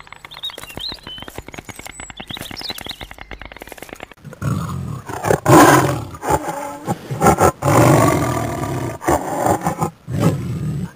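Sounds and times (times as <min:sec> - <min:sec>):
lion roaring: 0:04.2 - 0:10.9.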